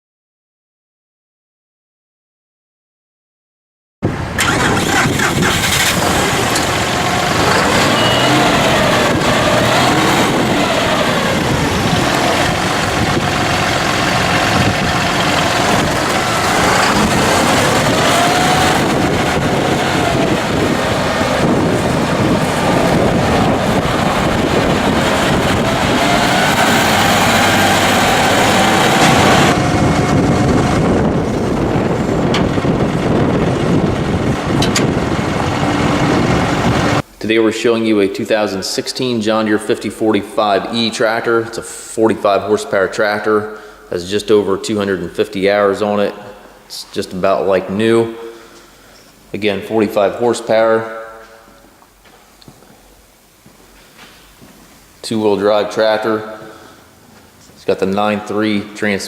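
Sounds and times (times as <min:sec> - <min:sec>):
tractor diesel engine running: 0:04.1 - 0:37.2.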